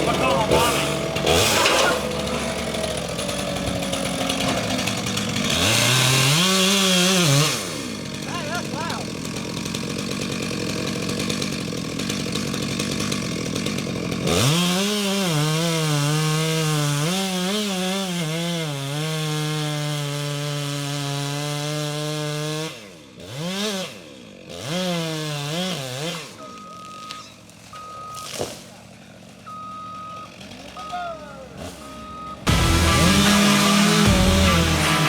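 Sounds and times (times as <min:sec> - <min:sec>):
rough machine noise: 0:00.0 - 0:14.5, 0:30.3 - 0:35.0
chainsaw engine revving: 0:00.0 - 0:35.0
reversing beep: 0:26.4 - 0:28.4, 0:29.5 - 0:31.0, 0:31.9 - 0:32.5.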